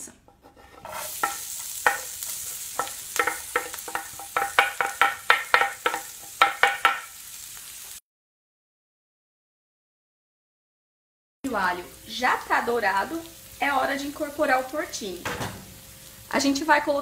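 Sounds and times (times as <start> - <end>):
wooden spoon knocking and scraping: 0.2 - 7.1
garlic sizzling in oil: 0.5 - 8.0, 11.5 - 17.0.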